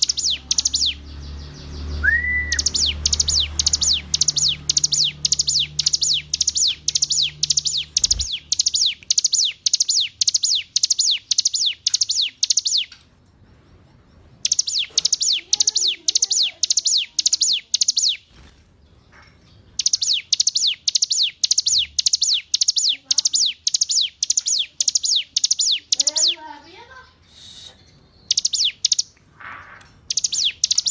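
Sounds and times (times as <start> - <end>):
bird singing sharp high notes: 0.0 - 12.9, 14.4 - 18.5, 19.8 - 26.6, 30.0 - 30.9.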